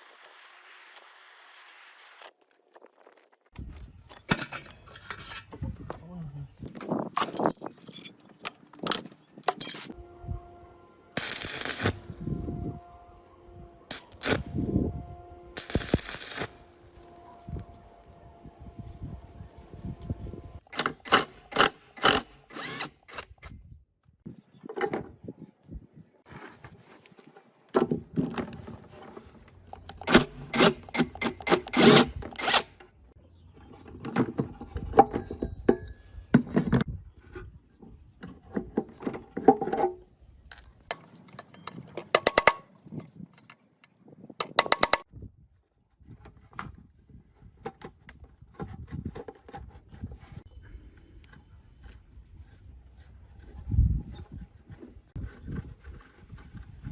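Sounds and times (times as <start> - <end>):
scraping and rubbing on metal: 4.5 - 5.6.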